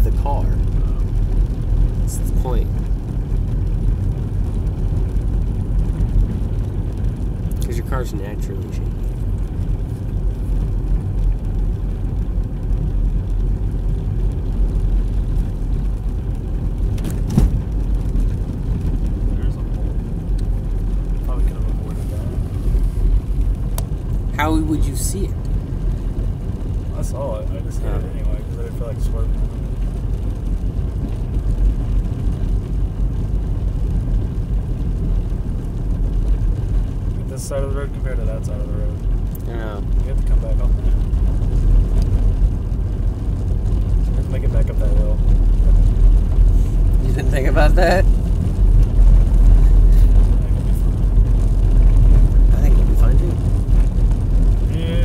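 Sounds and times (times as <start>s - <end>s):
car engine: 0.0s - 55.0s
tyre and road noise: 0.0s - 55.0s.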